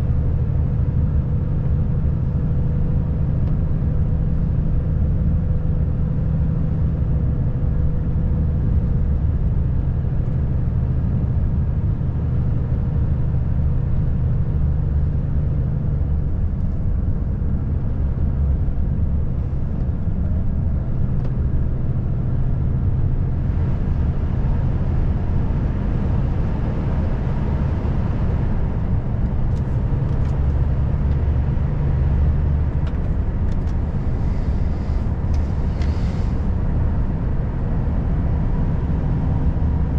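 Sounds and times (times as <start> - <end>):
road noise: 0.0 - 39.9
truck diesel engine droning: 10.8 - 39.9.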